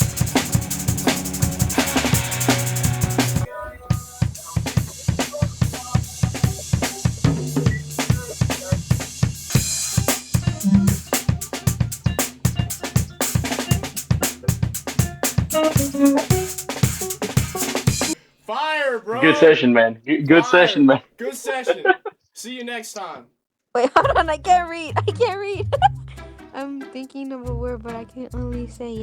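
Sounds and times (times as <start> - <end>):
drum kit fast groove: 0.0 - 18.2.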